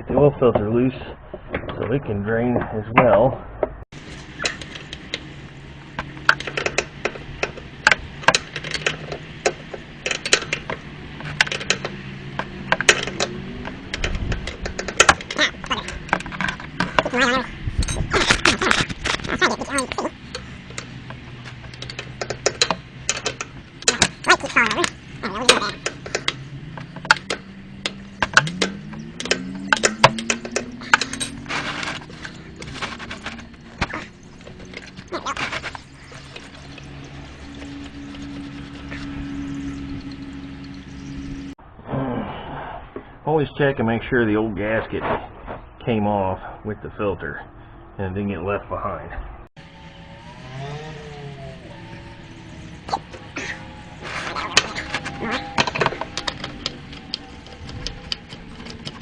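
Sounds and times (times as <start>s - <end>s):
hand tools clinking on metal: 14.0s - 35.8s.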